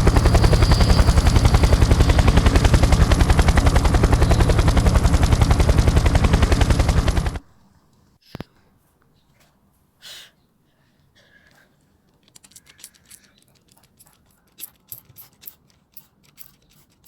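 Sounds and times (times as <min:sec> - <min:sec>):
loud rapid rattle: 0:00.0 - 0:07.4.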